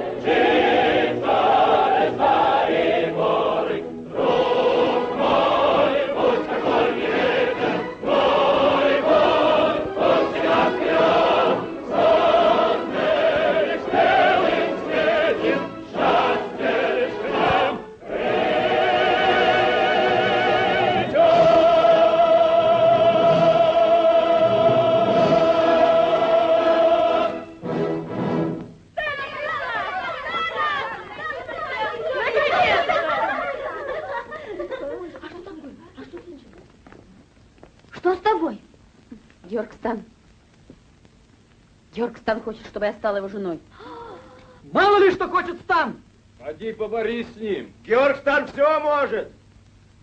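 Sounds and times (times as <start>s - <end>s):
choir singing: 0.0s - 28.5s.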